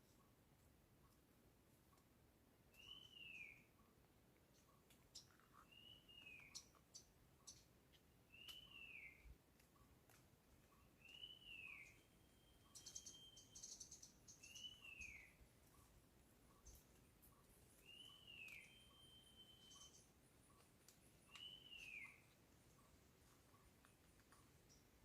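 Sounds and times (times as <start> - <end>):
high bird chirps and clicks: 2.7 - 3.7, 4.4 - 12.0, 12.6 - 15.9, 16.5 - 24.9
bird whistling: 11.1 - 13.8, 17.9 - 20.0, 21.3 - 22.2.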